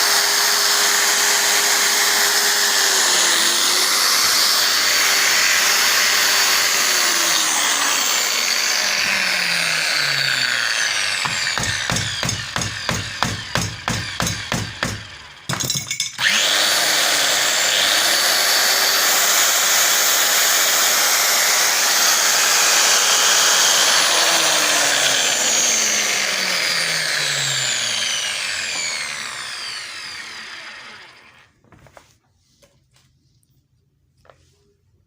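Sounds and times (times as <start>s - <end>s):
power tool motor running: 0.0s - 15.5s, 16.2s - 31.5s
motor winding down whine: 22.4s - 31.5s.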